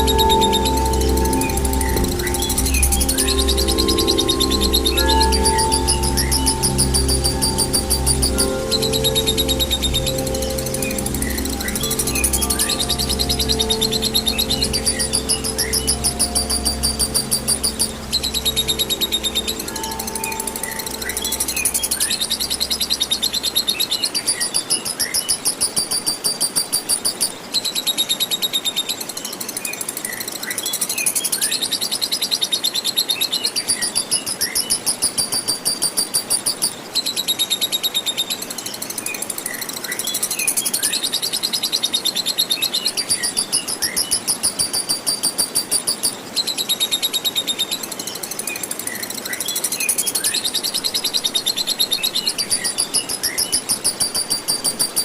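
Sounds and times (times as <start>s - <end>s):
lovebird chattering trills: 0.0s - 27.3s, 49.8s - 55.0s.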